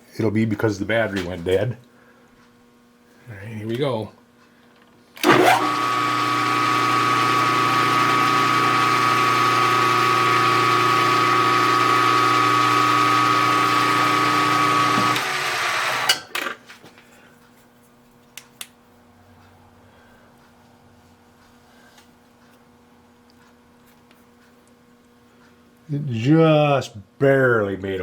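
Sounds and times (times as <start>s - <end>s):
milling machine running with whine: 5.2s - 16.1s.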